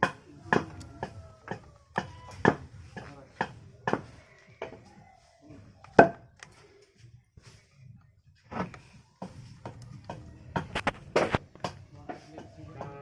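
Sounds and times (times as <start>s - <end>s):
objects knocking and clacking: 0.0s - 4.9s, 8.5s - 13.0s.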